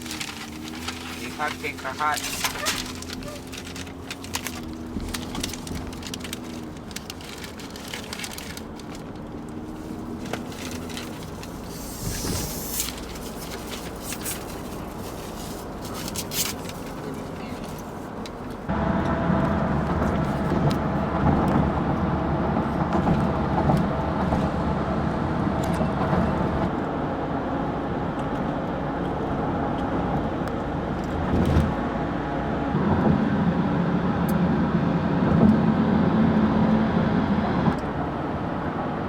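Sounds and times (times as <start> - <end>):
car engine and road rumble: 0.0 - 39.0.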